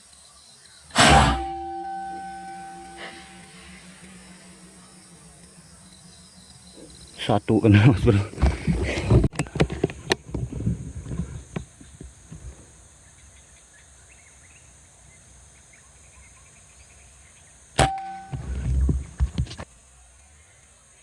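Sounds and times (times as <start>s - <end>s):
air rifle shot: 0.9s - 3.4s.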